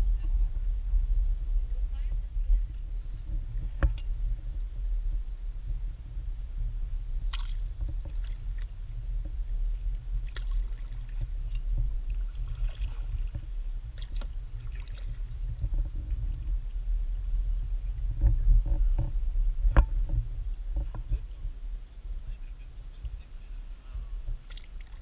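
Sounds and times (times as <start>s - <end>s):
low rumble: 0.0s - 25.0s
paddle splashing in water: 7.3s - 8.7s, 10.2s - 15.5s, 24.4s - 25.0s.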